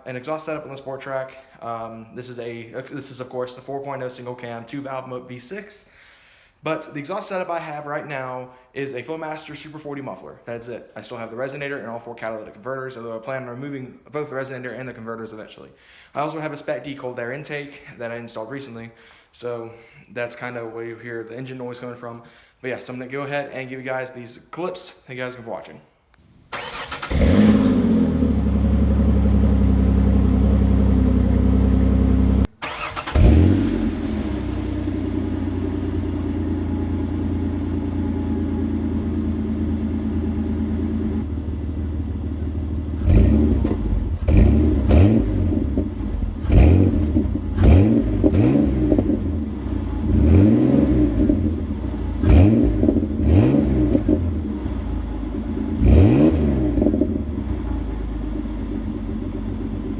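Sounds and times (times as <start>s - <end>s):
car engine idling and revving: 26.6s - 59.9s.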